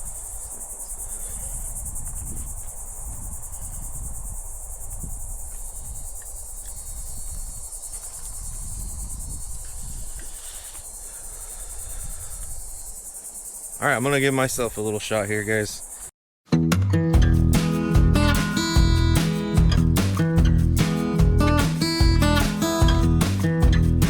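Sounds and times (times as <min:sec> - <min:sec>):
insects trilling: 0:00.0 - 0:16.1.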